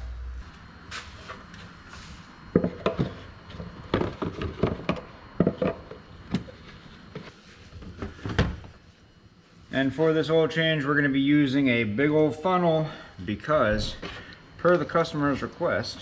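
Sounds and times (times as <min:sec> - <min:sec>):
hard objects knocking and clunking: 0:02.5 - 0:07.3.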